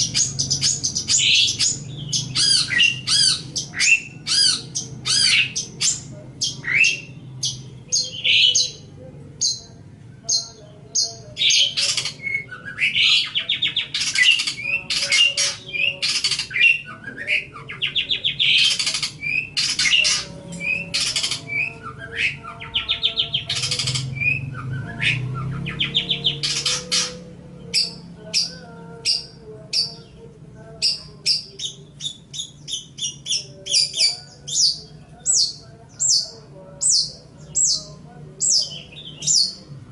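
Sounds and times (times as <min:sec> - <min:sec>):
shrike singing harsh squawks: 0:00.0 - 0:30.2.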